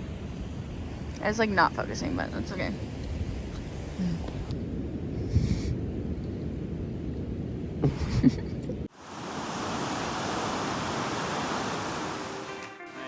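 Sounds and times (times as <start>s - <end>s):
ocean surf washing: 0.0s - 5.2s, 7.6s - 12.7s
wind rumbling on microphone: 0.0s - 12.3s.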